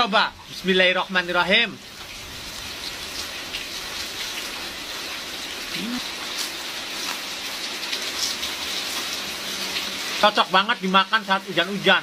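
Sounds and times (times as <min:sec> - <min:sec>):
rain falling: 0:00.0 - 0:12.0
crisp chip being chewed: 0:05.6 - 0:09.2
person humming: 0:05.7 - 0:06.1.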